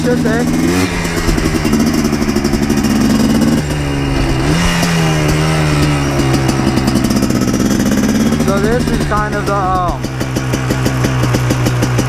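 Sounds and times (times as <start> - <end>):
two-stroke engine running: 0.0 - 12.0.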